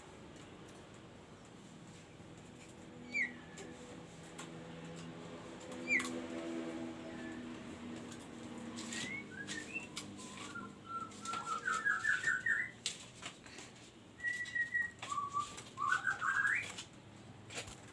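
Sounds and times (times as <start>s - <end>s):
songbird whistling: 3.0s - 3.6s, 5.8s - 6.1s, 8.8s - 12.8s, 14.2s - 16.8s.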